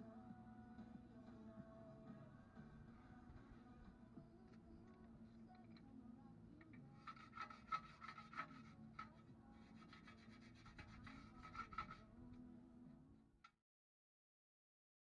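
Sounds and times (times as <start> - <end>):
scraping and rubbing strokes: 6.9 - 12.2.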